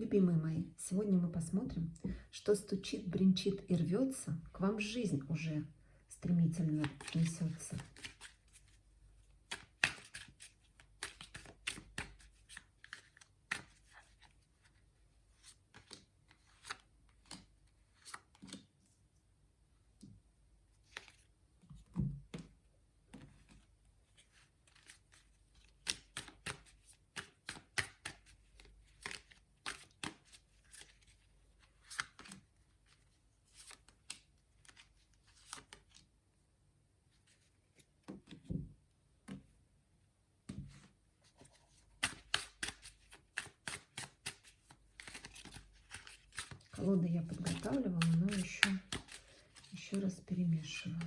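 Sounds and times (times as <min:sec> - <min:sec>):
cards being shuffled by hand: 0:06.7 - 0:08.8, 0:09.4 - 0:18.7, 0:23.1 - 0:36.0, 0:40.7 - 0:51.0.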